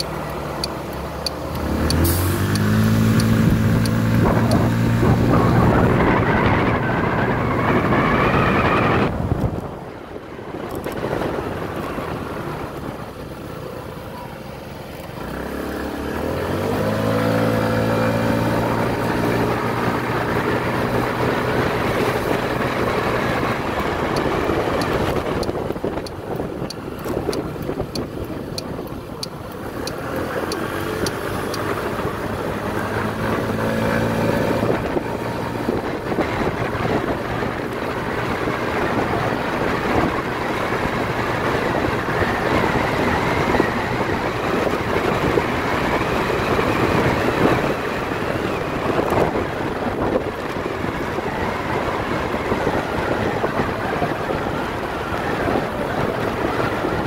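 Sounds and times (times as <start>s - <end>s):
motorcycle engine pulling away: 0.0s - 9.2s, 15.0s - 57.0s
wind noise on microphone: 0.0s - 14.4s, 15.1s - 57.0s.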